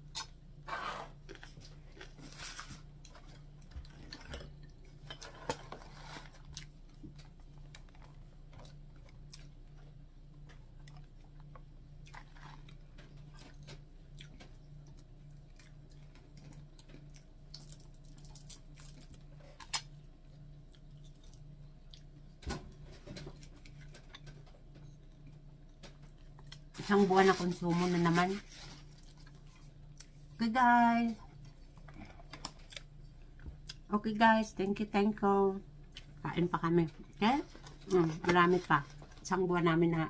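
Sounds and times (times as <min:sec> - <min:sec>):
steady low hum: 0:00.0 - 0:40.0
person chewing: 0:06.4 - 0:22.2, 0:31.6 - 0:33.9.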